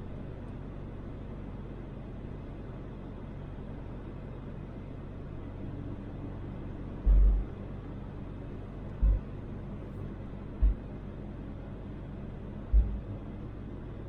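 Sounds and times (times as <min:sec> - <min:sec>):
engine and road rumble: 0:00.0 - 0:14.0
deep thumps: 0:07.0 - 0:07.6, 0:09.0 - 0:09.3, 0:10.6 - 0:10.9, 0:12.7 - 0:13.2.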